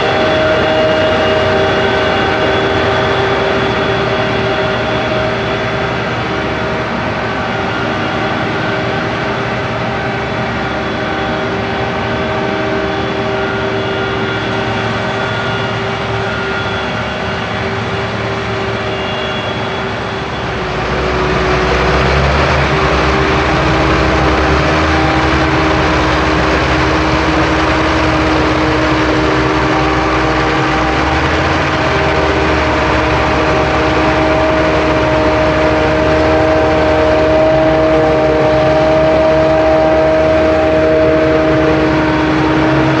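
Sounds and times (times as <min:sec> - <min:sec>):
whine of held tones: 0:00.0 - 0:43.0
harvesting machinery engine rumble: 0:13.2 - 0:43.0.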